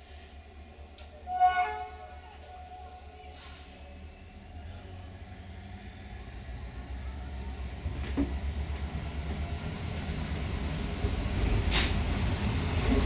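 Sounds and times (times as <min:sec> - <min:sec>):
train wheels rumbling on rail: 0:04.6 - 0:13.0.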